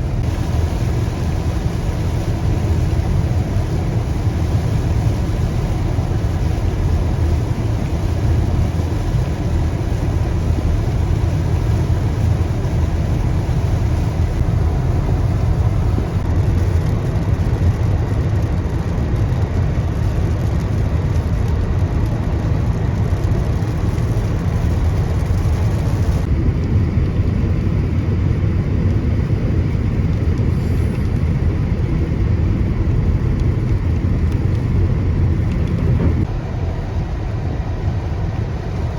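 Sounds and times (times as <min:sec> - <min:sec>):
noisy hiss: 0:00.0 - 0:16.7
road and engine rumble: 0:00.0 - 0:38.9.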